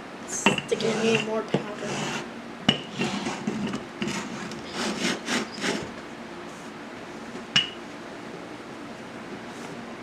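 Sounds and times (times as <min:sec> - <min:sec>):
dough rubbing on table: 0:00.7 - 0:05.9.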